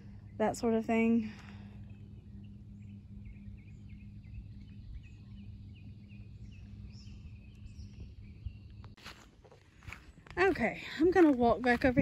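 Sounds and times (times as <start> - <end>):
steady low hum: 0.0 - 12.0
bird chirping: 1.7 - 9.0.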